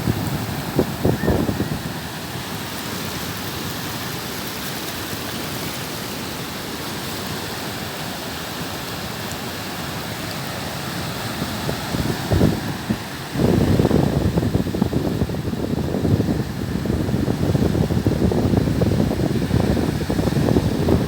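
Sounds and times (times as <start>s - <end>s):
waves breaking: 0.0s - 21.0s.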